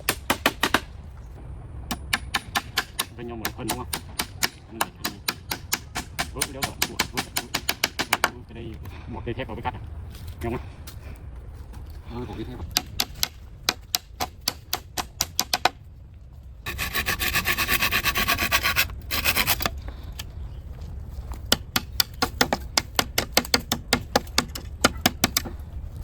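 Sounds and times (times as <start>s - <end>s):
rasping of sawing or filing: 16.7s - 19.8s.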